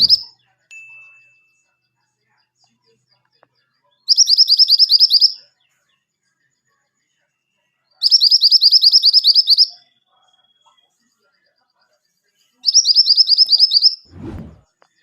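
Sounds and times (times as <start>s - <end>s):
songbird singing fast trills: 0.0s - 0.3s, 4.1s - 5.4s, 8.0s - 9.8s, 12.6s - 14.0s.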